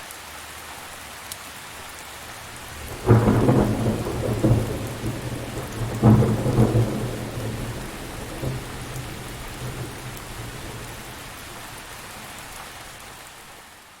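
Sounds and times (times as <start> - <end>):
steady rain: 0.0 - 14.0
low rumble of thunder: 2.6 - 13.2.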